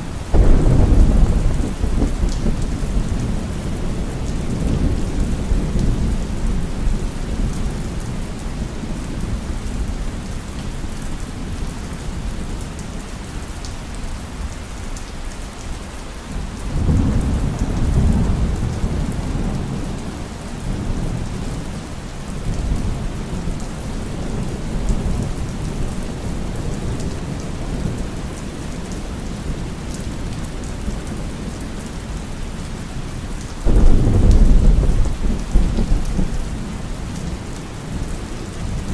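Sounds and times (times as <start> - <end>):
heavy rain falling: 0.0 - 38.9
rolling thunder: 0.3 - 8.9, 33.6 - 38.9.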